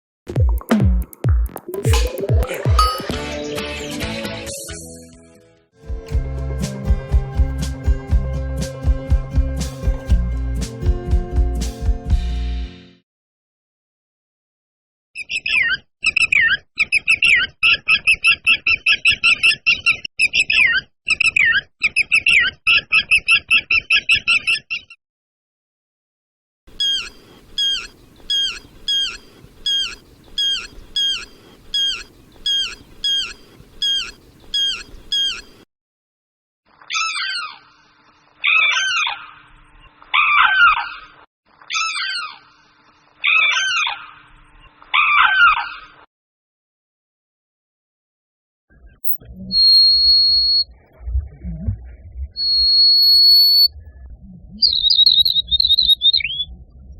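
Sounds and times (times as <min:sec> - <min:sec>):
fast chattering birdsong: 0:26.7 - 0:35.6, 0:54.6 - 0:56.4
loud descending bird calls: 0:26.8 - 0:35.5.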